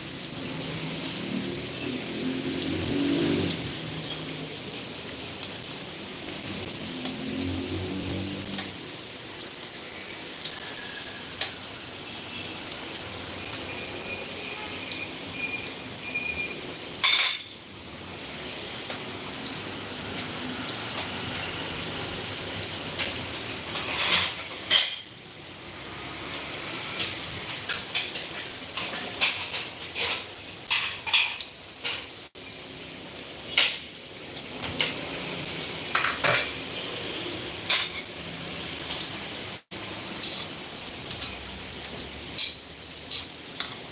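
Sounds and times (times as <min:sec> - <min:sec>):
frying sizzle: 0:00.0 - 0:43.9
metal utensils clinking on cookware: 0:16.9 - 0:17.6, 0:22.8 - 0:25.2, 0:26.9 - 0:32.1, 0:35.9 - 0:36.8, 0:37.6 - 0:38.2, 0:42.3 - 0:43.9.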